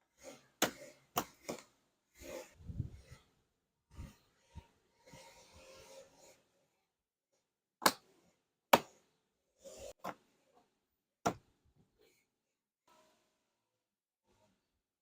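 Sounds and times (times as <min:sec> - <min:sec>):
rubbing or scraping: 0:03.9 - 0:06.6.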